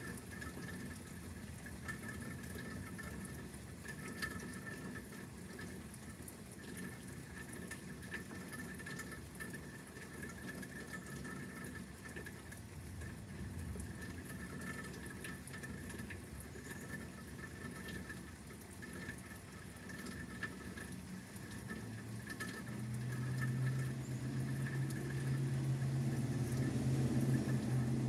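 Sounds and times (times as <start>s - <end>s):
rain pattering: 0.0s - 28.0s
water drips: 0.0s - 28.0s
low steady hum: 12.8s - 28.0s.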